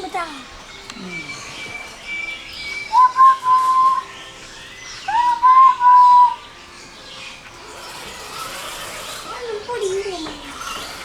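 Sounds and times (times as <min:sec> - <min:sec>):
person whistling: 0:03.0 - 0:04.0.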